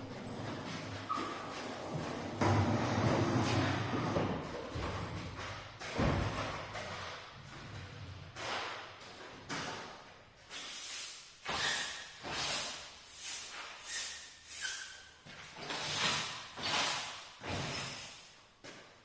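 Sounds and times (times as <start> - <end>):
broom sweeping floor: 10.4 - 18.4.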